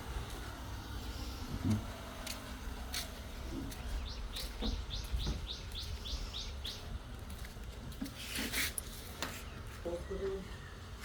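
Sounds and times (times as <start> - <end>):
bird chirping: 3.5 - 7.0.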